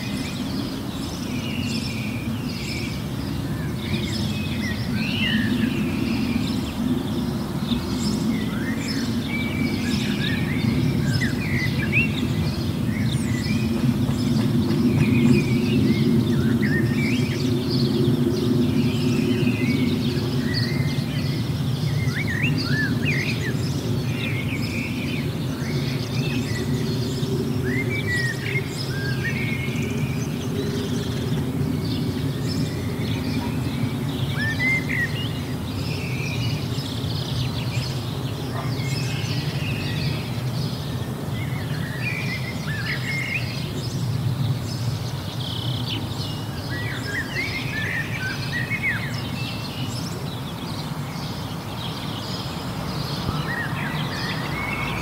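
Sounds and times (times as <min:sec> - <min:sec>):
songbirds chirping and whistling: 0:00.0 - 0:55.0.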